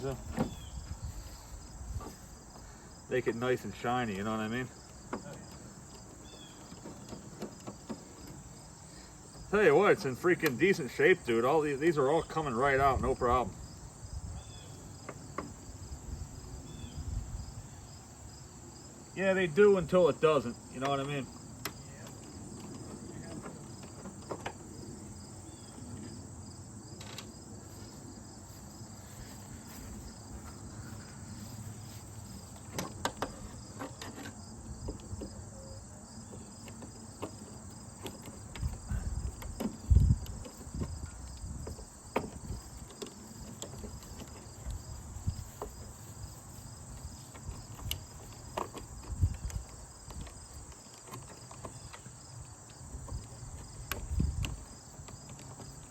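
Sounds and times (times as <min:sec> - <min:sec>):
insects chirring: 0:00.0 - 0:55.9.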